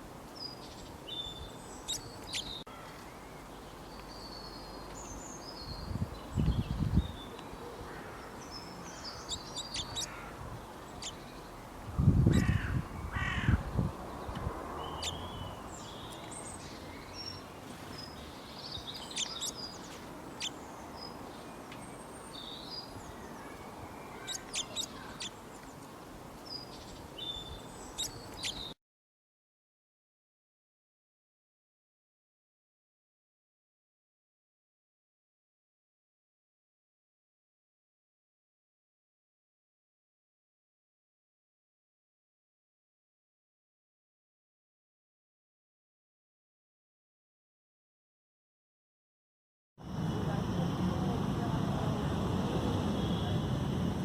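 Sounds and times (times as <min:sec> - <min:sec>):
outdoor background hiss: 0:00.0 - 0:28.8, 0:49.8 - 0:54.0
birds chirping and calling: 0:00.5 - 0:11.6, 0:12.2 - 0:25.9, 0:26.5 - 0:28.7.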